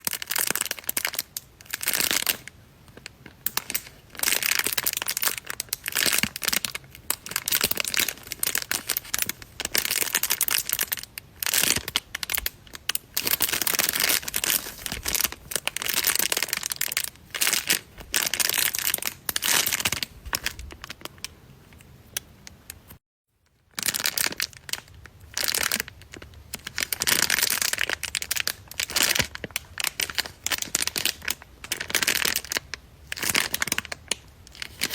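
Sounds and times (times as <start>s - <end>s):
squishy toy crinkling: 0.0s - 22.6s, 23.7s - 34.9s.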